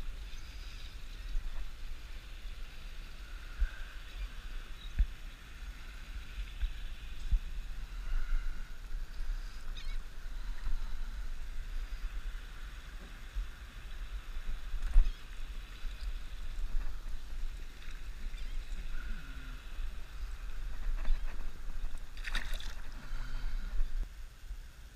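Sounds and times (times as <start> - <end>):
light water sounds: 8.8 - 24.1
wind buffeting microphone: 13.1 - 24.1.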